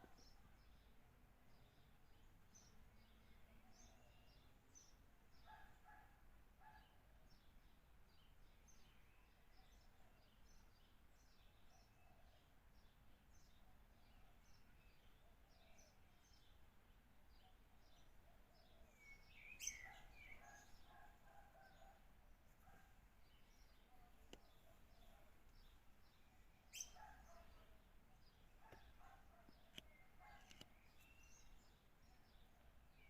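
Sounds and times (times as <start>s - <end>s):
birds chirping: 17.3s - 33.0s.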